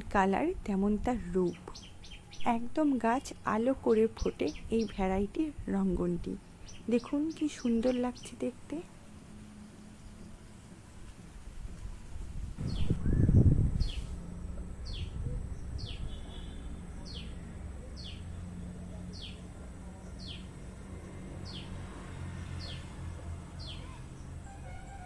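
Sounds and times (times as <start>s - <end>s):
brief low rumble: 12.4s - 14.2s.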